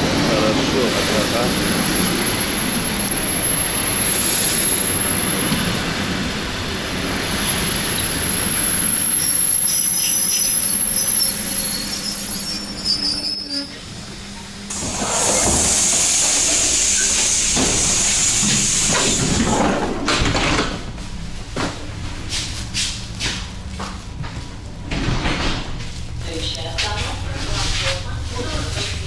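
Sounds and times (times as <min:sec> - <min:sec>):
electric train running: 0:00.0 - 0:19.8
loud hiss: 0:14.7 - 0:19.6.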